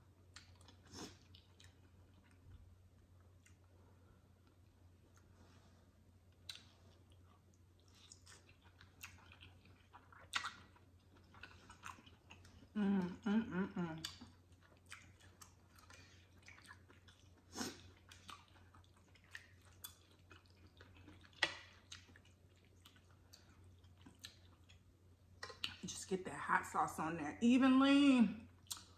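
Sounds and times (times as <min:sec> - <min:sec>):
wet chewing and smacking: 0:00.1 - 0:03.8, 0:06.2 - 0:12.8, 0:13.8 - 0:25.9, 0:28.5 - 0:28.9.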